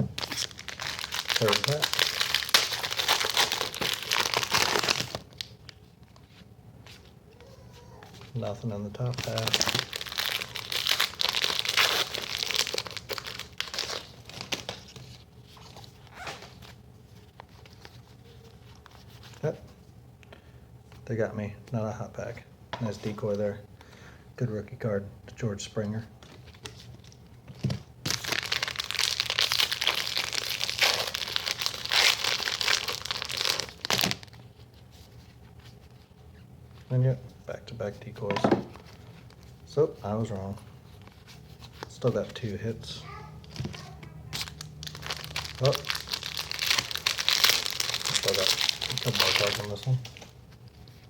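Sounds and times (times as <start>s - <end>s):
wrapper crinkling: 0.1s - 6.3s, 8.1s - 19.4s, 28.0s - 36.1s, 43.4s - 51.0s.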